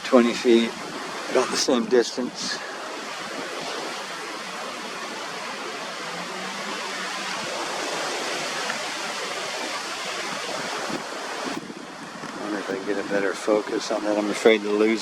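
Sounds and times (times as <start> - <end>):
strong wind on microphone: 0.0 - 15.0.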